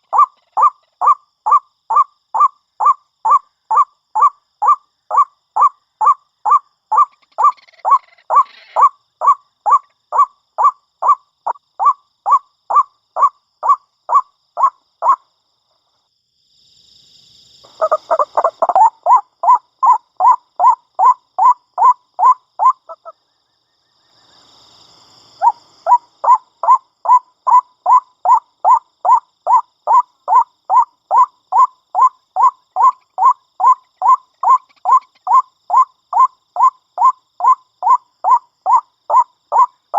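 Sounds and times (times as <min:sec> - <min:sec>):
waterhen calling: 0:17.8 - 0:20.0.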